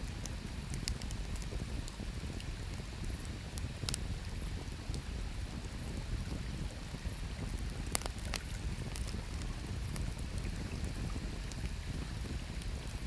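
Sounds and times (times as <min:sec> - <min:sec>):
wood fire crackling: 0:00.1 - 0:02.2, 0:06.8 - 0:10.1
fire popping: 0:00.2 - 0:01.6, 0:07.4 - 0:10.1.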